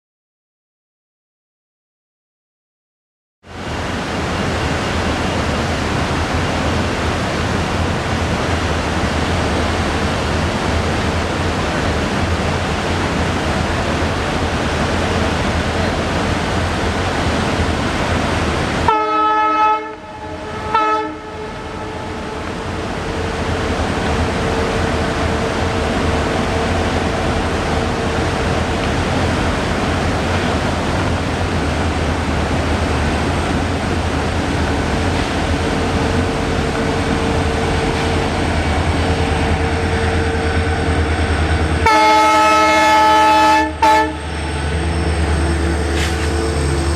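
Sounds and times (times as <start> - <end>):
diesel locomotives rumbling: 3.5 - 46.9
locomotive horn blasts: 18.9 - 22.5, 41.8 - 46.9.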